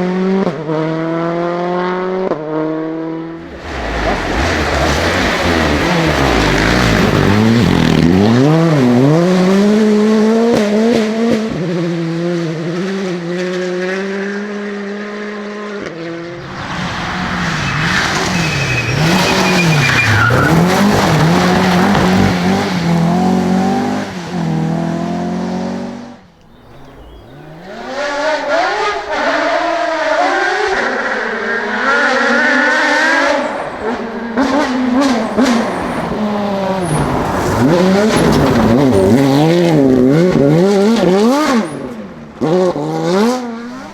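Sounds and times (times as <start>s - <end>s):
rally car engines revving: 0.0s - 43.9s
tyre squeal: 16.4s - 23.0s.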